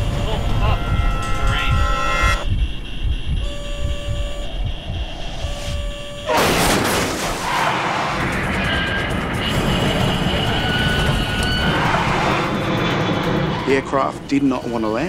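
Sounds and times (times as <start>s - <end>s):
cockpit low rumble: 0.0s - 6.5s, 7.8s - 15.0s
warning tones: 0.0s - 6.7s, 7.4s - 15.0s
loud crash of plane landing: 6.3s - 11.0s.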